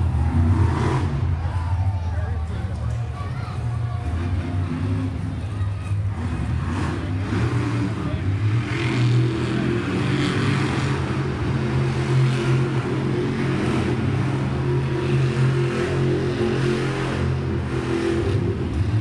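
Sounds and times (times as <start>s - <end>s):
truck engine running loud: 0.0s - 19.0s.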